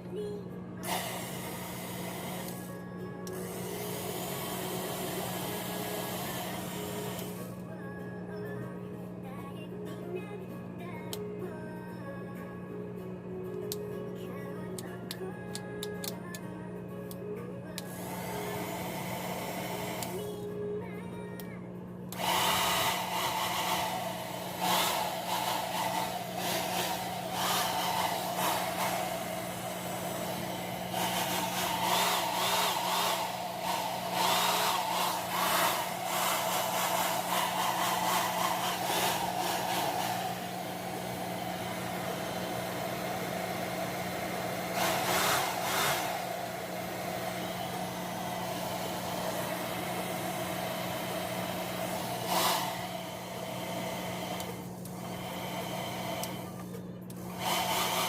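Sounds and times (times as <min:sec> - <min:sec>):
hair dryer running: 0:00.7 - 0:07.7, 0:17.7 - 0:20.6, 0:22.0 - 0:58.0.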